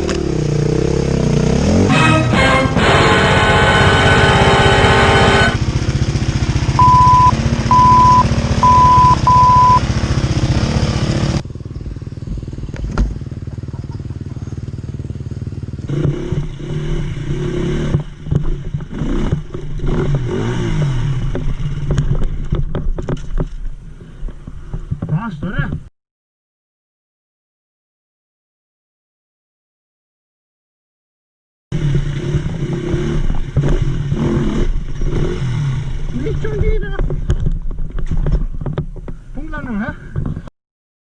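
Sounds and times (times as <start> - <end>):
dirt bike engine revving: 0.2 - 11.4, 14.5 - 21.8, 31.8 - 36.1
short high beeps: 1.9 - 5.6, 6.8 - 9.8.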